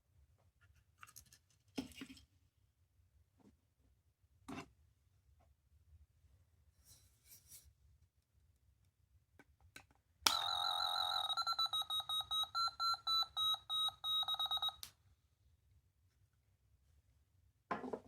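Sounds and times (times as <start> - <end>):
high electronic alarm tone: 10.3 - 14.8
toy click: 10.3 - 14.9.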